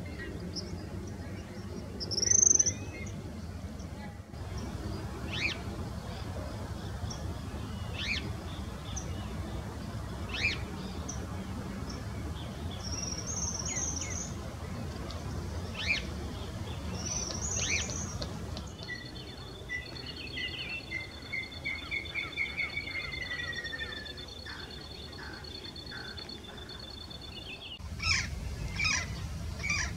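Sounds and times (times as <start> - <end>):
low background rumble: 27.7 - 29.9.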